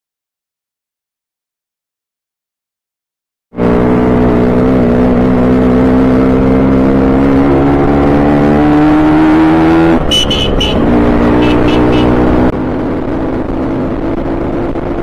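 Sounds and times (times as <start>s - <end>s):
motorcycle engine accelerating: 3.6s - 15.0s
short high-pitched beep: 10.1s - 10.8s.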